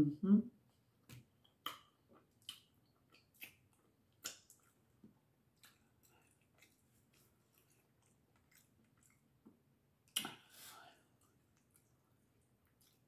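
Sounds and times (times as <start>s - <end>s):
soft wet chewing sounds: 0.5s - 13.0s.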